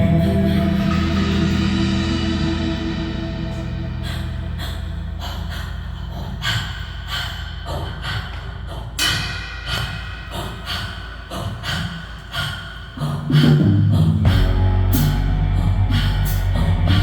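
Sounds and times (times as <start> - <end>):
held low bass note: 0.0 - 9.2, 13.4 - 17.0
struck percussion: 8.4 - 17.0.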